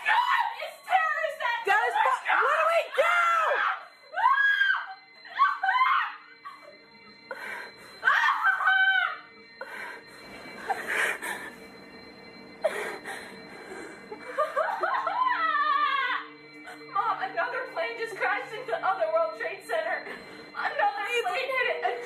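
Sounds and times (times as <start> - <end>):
women screaming in panic: 0.0 - 6.6, 8.0 - 9.2, 14.5 - 16.3
faint steady tones: 0.0 - 22.0.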